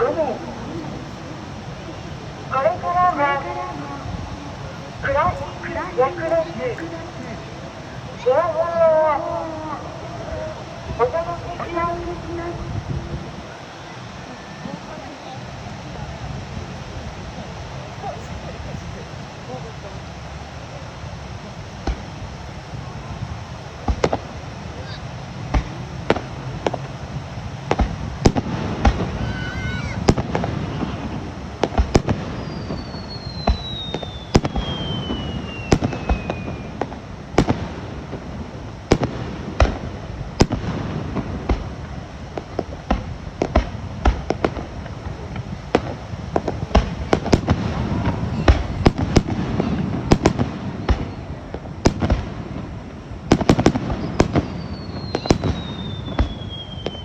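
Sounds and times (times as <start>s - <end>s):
fireworks bangs and crackles: 0.0s - 57.0s
long falling whistle: 32.4s - 36.8s, 54.1s - 57.0s.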